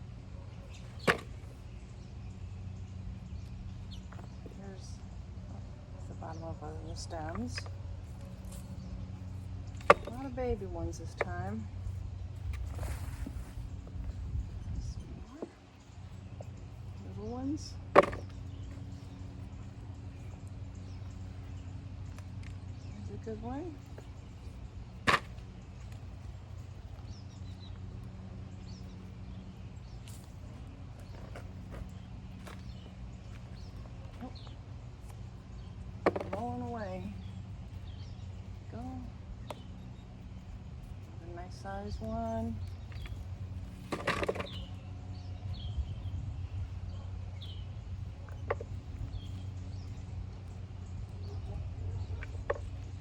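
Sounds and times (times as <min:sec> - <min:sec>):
steady low hum: 0:00.0 - 0:53.0
hands scraping through soil: 0:12.5 - 0:13.9.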